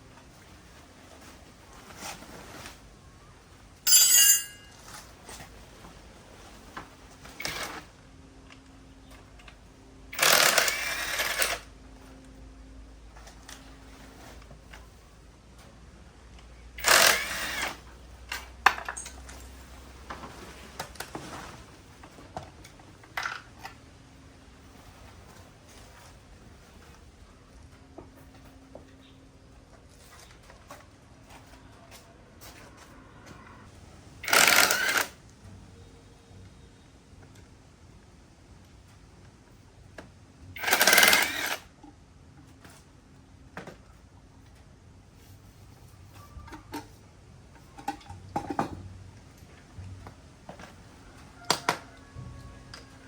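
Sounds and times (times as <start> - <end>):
metal clinks and taps: 3.9 - 4.8
metallic clang with ringing: 3.9 - 4.9.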